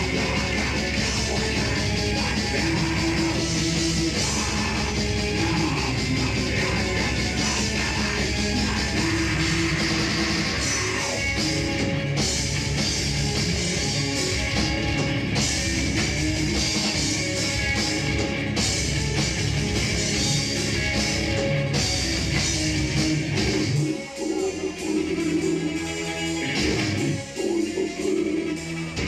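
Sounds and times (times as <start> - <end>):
live rock band playing: 0.0 - 29.0.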